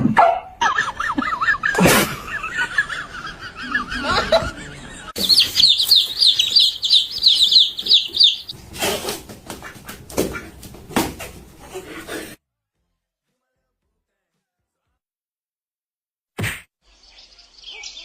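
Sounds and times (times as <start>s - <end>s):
small birds chirping: 4.2s - 8.6s, 16.8s - 18.0s.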